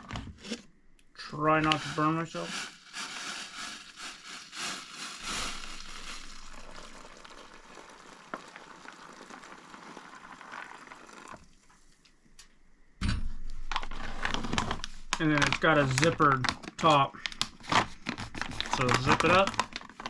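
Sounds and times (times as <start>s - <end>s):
boiling water pouring into pouch: 1.6s - 11.7s, 18.5s - 20.0s.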